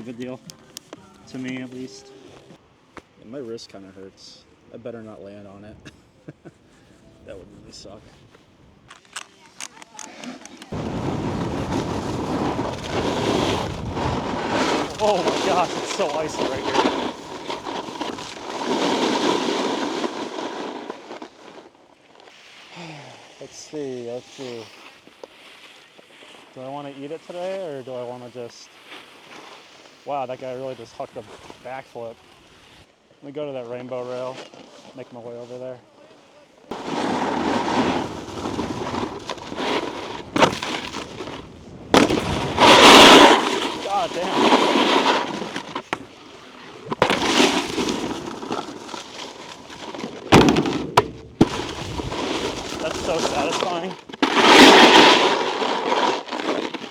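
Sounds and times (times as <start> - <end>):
snowboard scraping icy snow: 1.2 - 2.3, 10.2 - 56.9.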